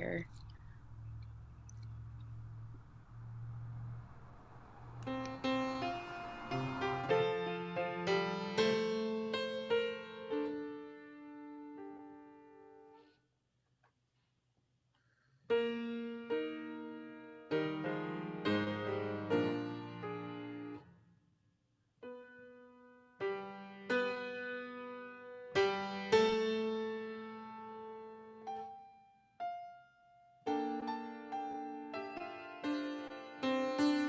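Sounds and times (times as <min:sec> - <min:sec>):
solo piano chords: 0:00.0 - 0:13.0, 0:15.5 - 0:20.9, 0:22.0 - 0:34.0.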